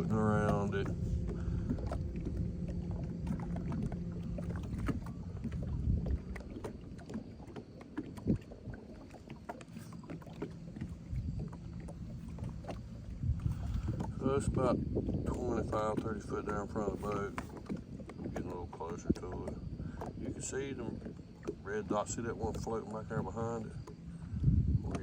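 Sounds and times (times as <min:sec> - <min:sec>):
low rumble: 0:00.0 - 0:07.1, 0:10.2 - 0:18.1
boat engine hum: 0:00.0 - 0:25.0.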